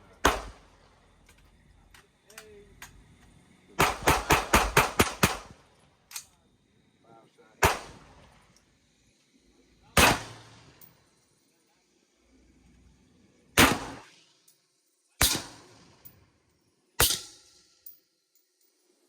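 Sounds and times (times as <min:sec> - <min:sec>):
gunshots: 0:00.2 - 0:00.6, 0:03.8 - 0:05.5, 0:07.6 - 0:08.1, 0:10.0 - 0:10.6, 0:13.6 - 0:14.1, 0:15.2 - 0:15.8.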